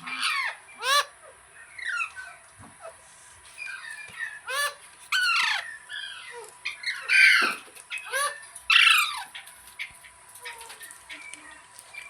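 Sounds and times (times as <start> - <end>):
parrot squawking: 0.0 - 1.2, 3.7 - 9.4.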